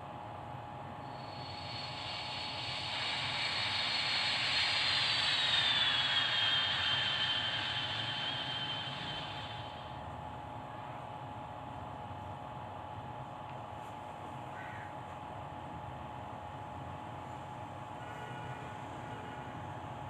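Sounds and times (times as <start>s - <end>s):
high whine dropping in pitch: 1.0s - 10.1s.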